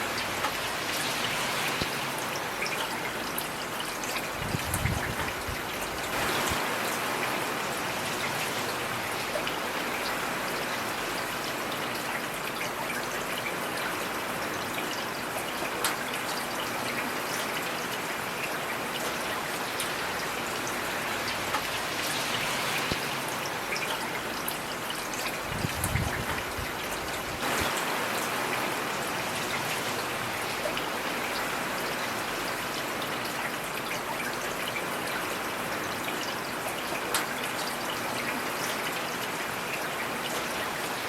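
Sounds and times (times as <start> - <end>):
heavy rain falling: 0.0 - 41.0.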